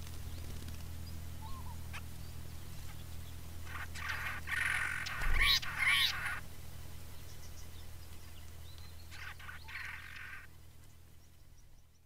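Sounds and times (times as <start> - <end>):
steady low hum: 0.0 - 12.0
faint bird chirps: 1.0 - 12.0
bird call: 1.4 - 2.0, 3.6 - 6.4.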